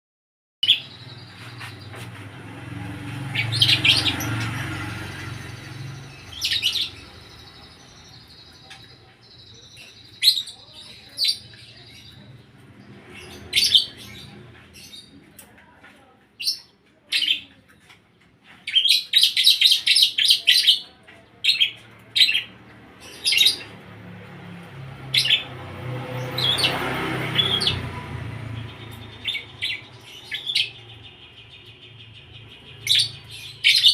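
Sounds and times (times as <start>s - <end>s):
bird chirping: 0.6s - 15.8s, 25.1s - 33.9s.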